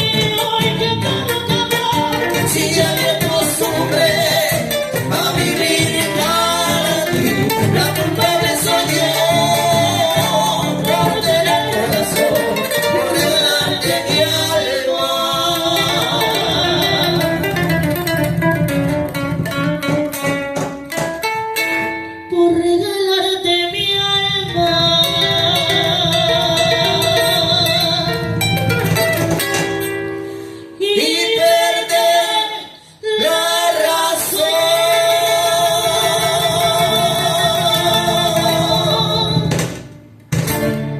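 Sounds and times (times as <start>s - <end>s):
person singing: 0.0s - 17.7s, 22.3s - 28.3s, 30.8s - 39.6s
plucked guitar: 0.0s - 32.6s, 33.2s - 40.9s.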